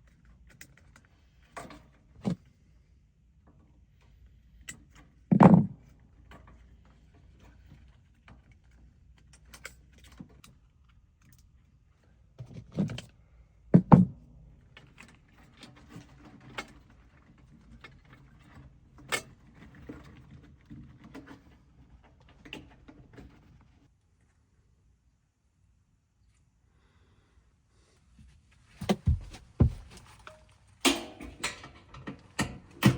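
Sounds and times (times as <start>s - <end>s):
heavy metal thunks: 28.8s - 30.0s.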